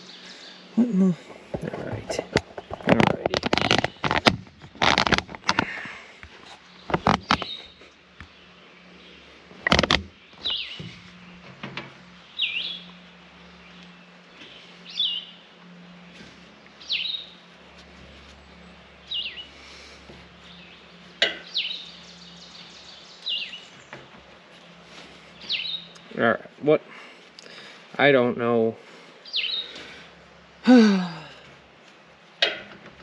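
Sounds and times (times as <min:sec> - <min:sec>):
bird chirping: 0:05.6 - 0:26.5, 0:29.2 - 0:30.0.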